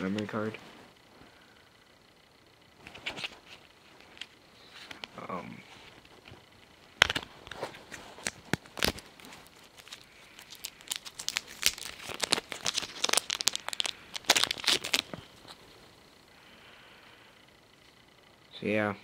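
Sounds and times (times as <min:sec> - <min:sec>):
packaging crinkling and tearing: 0:07.0 - 0:15.6.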